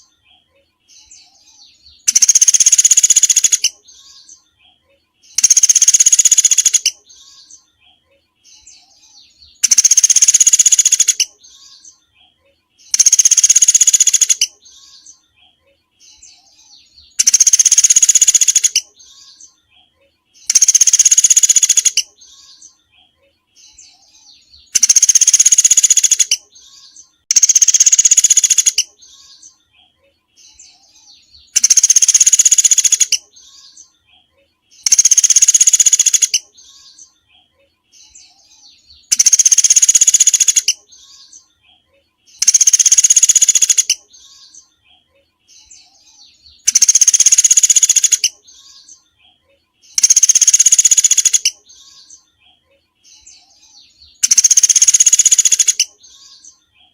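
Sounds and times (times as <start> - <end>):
soft bird chirps: 0.0 - 56.9
songbird harsh call: 20.4 - 22.6, 34.8 - 36.4, 39.0 - 40.8.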